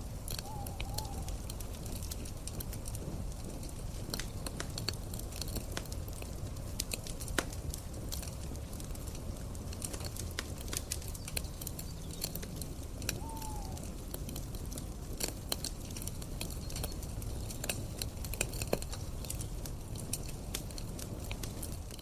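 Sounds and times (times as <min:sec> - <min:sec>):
campfire crackling and popping: 0:00.0 - 0:22.0
falling whistle-like call: 0:13.2 - 0:13.8.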